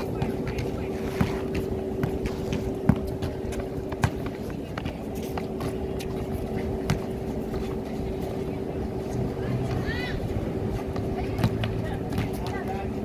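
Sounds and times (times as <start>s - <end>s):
basketball bouncing on court: 0.0s - 7.3s, 11.0s - 12.8s
steady hum: 0.0s - 13.0s.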